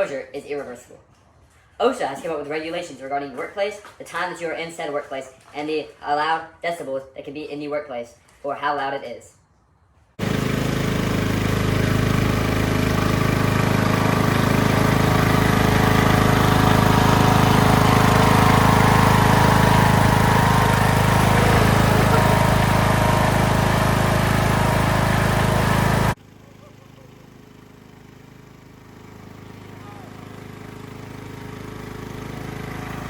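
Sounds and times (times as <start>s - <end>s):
loud engine-driven machine: 10.2s - 33.0s.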